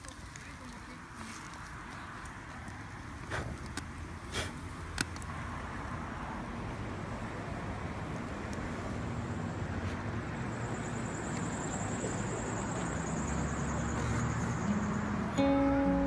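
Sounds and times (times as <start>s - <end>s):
low rumble of distant traffic: 0.0s - 16.0s
music: 14.7s - 16.0s.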